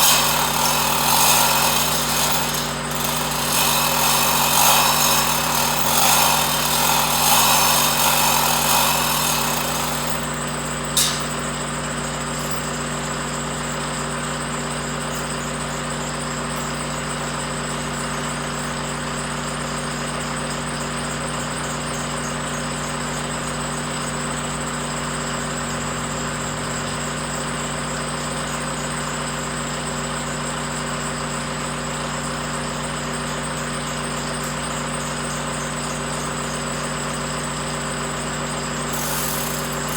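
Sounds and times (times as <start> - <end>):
power tool running: 0.0 - 19.2, 33.0 - 39.9
steady mechanical hum: 0.0 - 29.9, 32.2 - 39.9.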